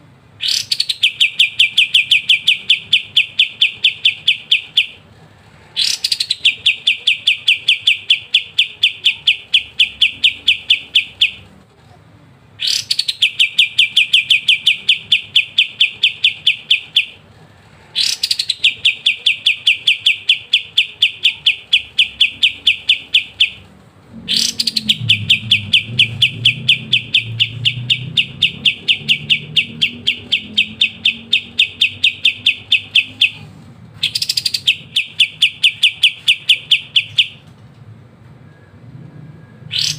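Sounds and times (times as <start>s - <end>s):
songbird fast trill: 0.4s - 5.0s, 24.3s - 33.4s, 34.0s - 37.4s.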